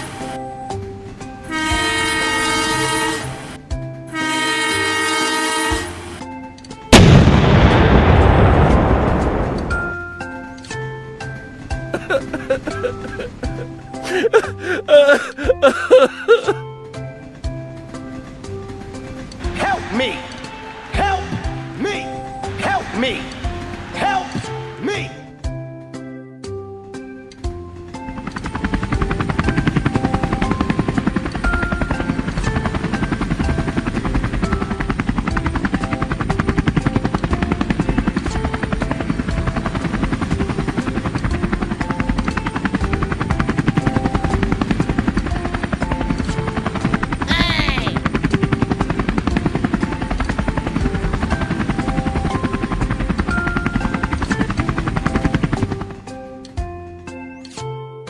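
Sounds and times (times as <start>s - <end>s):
rapid mechanical chopping noise: 28.1s - 56.0s.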